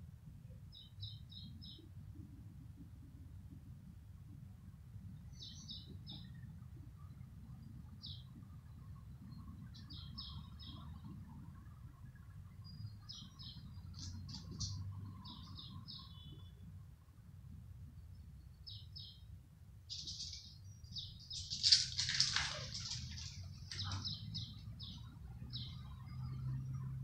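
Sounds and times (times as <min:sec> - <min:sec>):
birds chirping: 0:12.8 - 0:16.6, 0:19.9 - 0:26.4.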